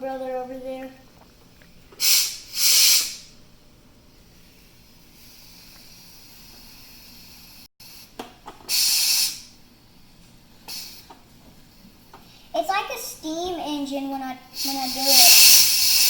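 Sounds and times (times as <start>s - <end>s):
faint steady steam hiss: 0.2s - 3.4s, 4.0s - 16.0s
pressure cooker hissing blasts: 2.0s - 3.3s, 4.4s - 9.6s, 10.6s - 11.2s, 14.6s - 16.0s.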